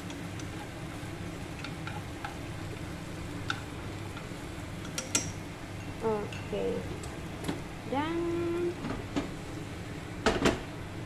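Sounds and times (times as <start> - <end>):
chopsticks clicking against pan: 0.0 - 0.6, 1.6 - 2.4, 3.4 - 5.3
food frying in oil: 0.0 - 11.0
steady low hum: 0.0 - 11.0.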